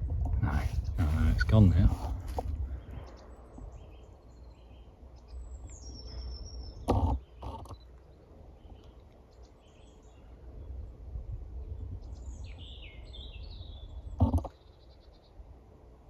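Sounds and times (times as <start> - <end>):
low rumble: 0.0 - 6.8
birds chirping: 0.4 - 16.0.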